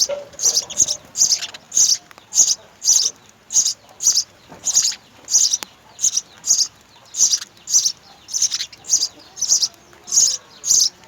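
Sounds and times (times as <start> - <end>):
sparrows chirping: 0.0 - 11.0.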